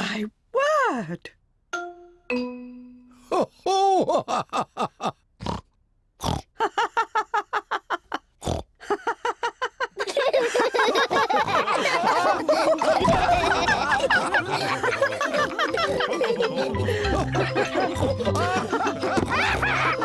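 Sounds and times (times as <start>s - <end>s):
cartoon pigs laughing and snorting: 6.2s - 20.0s.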